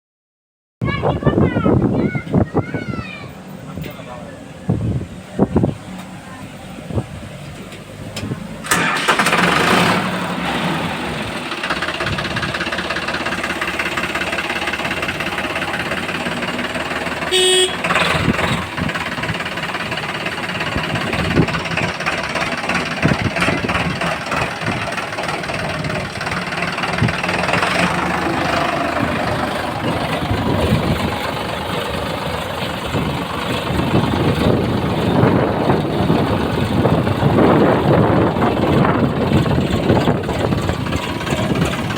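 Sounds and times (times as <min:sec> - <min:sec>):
heavy diesel engines running: 0:00.9 - 0:41.9
vehicle horn toot: 0:17.3 - 0:18.3.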